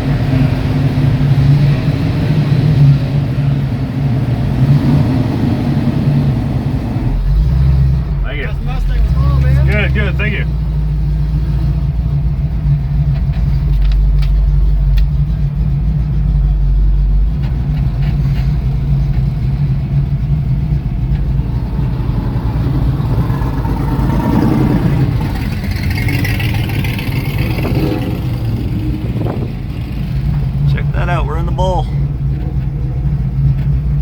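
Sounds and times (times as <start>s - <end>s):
car engine drone while driving: 0.0s - 34.0s.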